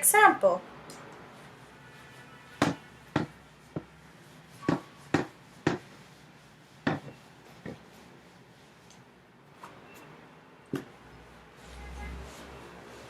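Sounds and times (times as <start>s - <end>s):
pen tapping: 4.7s - 5.9s.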